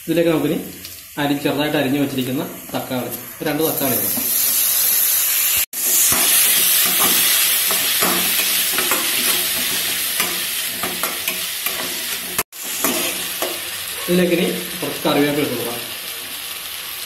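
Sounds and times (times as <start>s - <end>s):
vegetables sizzling in hot oil: 0.0s - 17.0s
metal spatula scraping pan: 5.8s - 13.7s.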